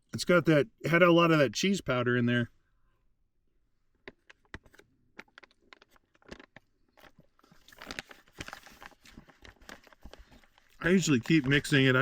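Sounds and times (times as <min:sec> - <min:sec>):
foil pouch crinkling: 0:04.1 - 0:12.0
spoon scraping food in pouch: 0:04.5 - 0:12.0.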